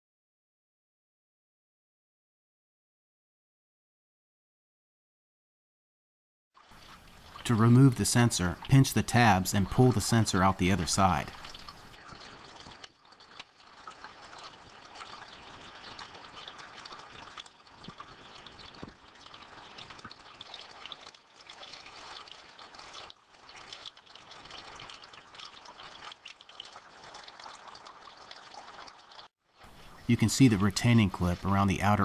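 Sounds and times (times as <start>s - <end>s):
low steady hiss: 6.7s - 12.4s, 29.6s - 32.0s.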